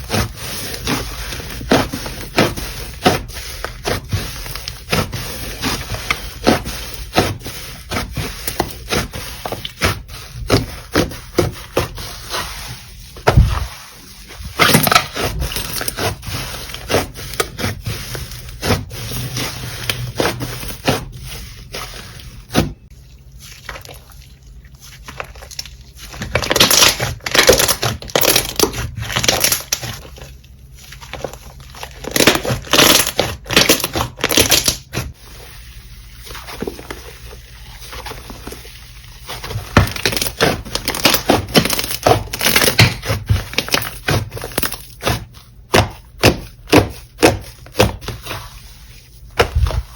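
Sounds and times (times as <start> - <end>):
slime crackling and popping: 25.0 - 30.2.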